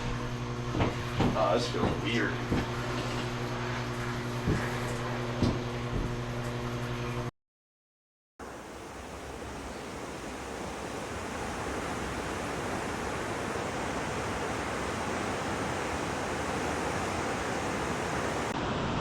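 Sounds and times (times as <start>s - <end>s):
river rapids roaring: 8.4s - 18.6s.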